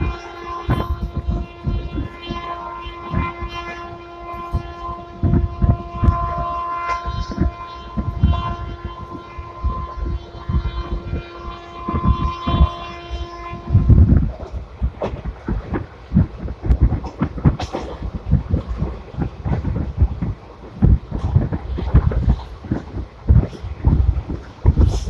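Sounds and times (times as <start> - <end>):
horn-like tone: 0.0 - 14.6
train wheels rumbling on track: 0.0 - 25.0.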